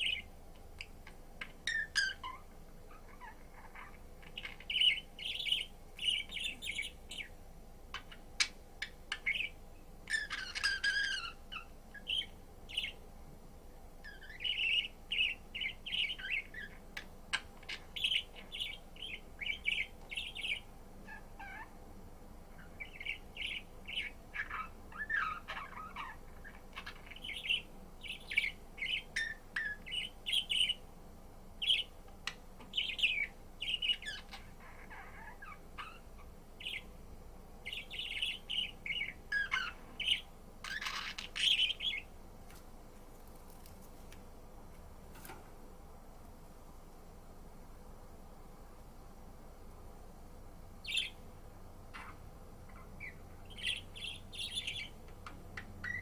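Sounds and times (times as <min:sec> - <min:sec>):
budgerigar chirping and warbling: 0:01.0 - 0:07.3, 0:07.9 - 0:13.0, 0:17.6 - 0:21.8, 0:22.6 - 0:30.8, 0:32.8 - 0:36.8, 0:37.7 - 0:42.1, 0:50.8 - 0:51.2, 0:51.9 - 0:55.0, 0:55.6 - 0:56.0.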